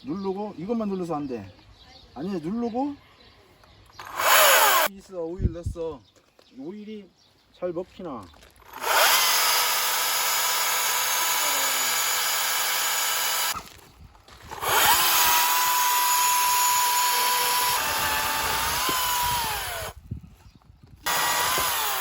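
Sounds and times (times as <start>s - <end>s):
electric chainsaw motor whine: 4.0s - 4.9s, 8.7s - 13.6s, 14.5s - 20.0s, 21.0s - 22.0s.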